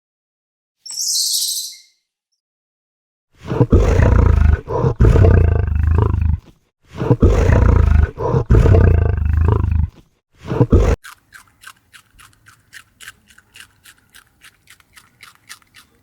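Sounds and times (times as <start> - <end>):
large animal deep rough call: 3.4 - 6.4, 7.0 - 9.9.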